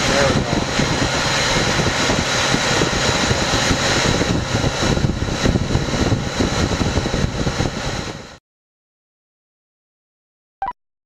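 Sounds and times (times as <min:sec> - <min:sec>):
refrigeration unit running: 0:00.0 - 0:08.4.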